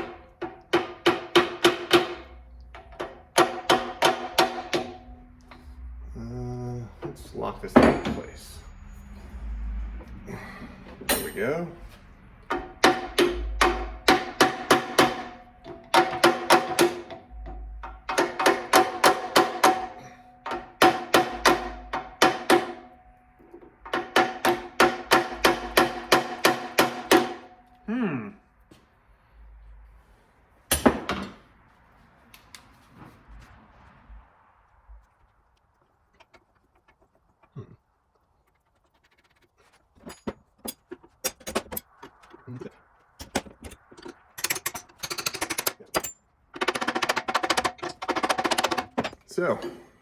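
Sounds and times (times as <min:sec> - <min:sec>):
hammer striking steel: 0:00.0 - 0:05.8, 0:11.0 - 0:11.7, 0:12.5 - 0:27.8
tools and metal parts clicking: 0:40.0 - 0:42.5, 0:43.2 - 0:49.8.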